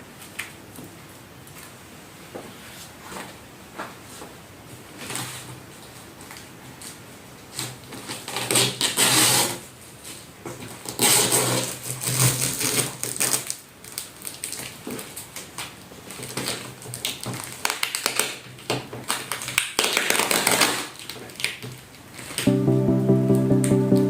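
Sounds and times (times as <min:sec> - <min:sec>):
music: 0:22.5 - 0:24.0.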